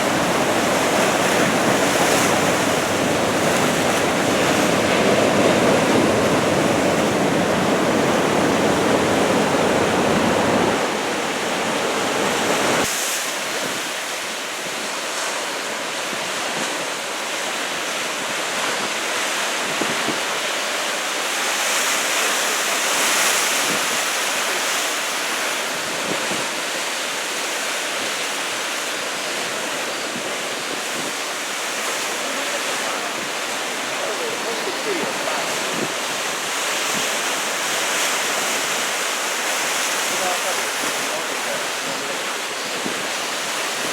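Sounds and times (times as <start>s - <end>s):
wind rumble on microphone: 0.0s - 14.0s, 18.0s - 20.4s, 23.5s - 24.0s, 25.6s - 26.7s, 29.1s - 38.8s, 41.9s - 43.9s
ocean waves breaking: 0.0s - 43.9s.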